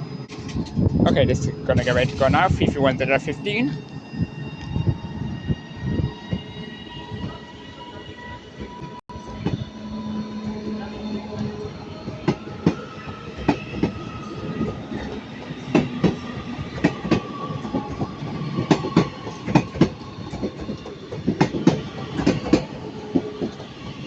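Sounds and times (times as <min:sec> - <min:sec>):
train wheels clicking over rail joints: 0:14.6 - 0:23.7.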